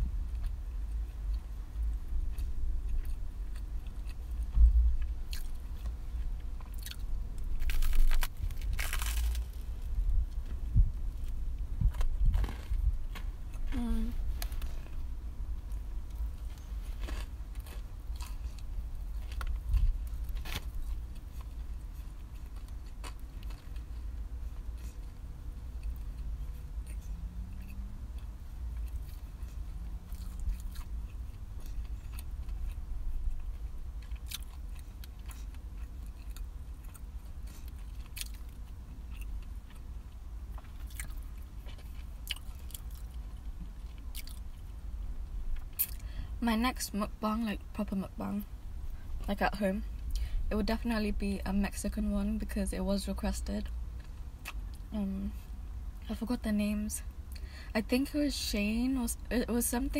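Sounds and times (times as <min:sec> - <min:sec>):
steady low rumble: 0:00.0 - 0:59.9
chewing a toasted sandwich: 0:00.3 - 0:13.7, 0:15.6 - 0:46.1, 0:53.9 - 0:54.9
crisp crunches: 0:06.6 - 0:10.0, 0:11.9 - 0:13.8, 0:16.1 - 0:21.6.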